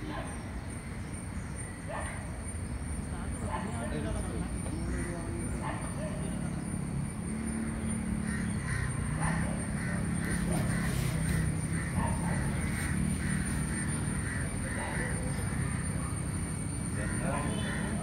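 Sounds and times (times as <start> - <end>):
traffic hum: 0.0 - 18.0.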